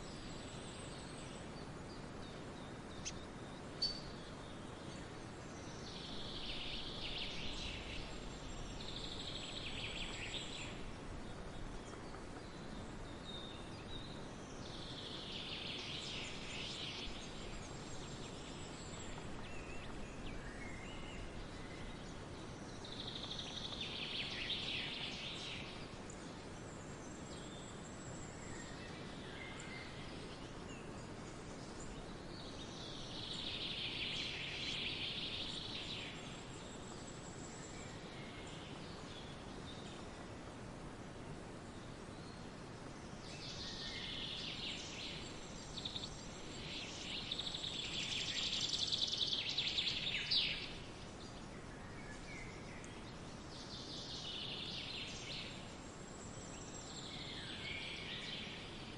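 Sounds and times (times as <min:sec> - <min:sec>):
songbird twittering: 0:00.0 - 0:40.1, 0:43.2 - 0:58.7
steady background hiss: 0:00.0 - 0:58.9.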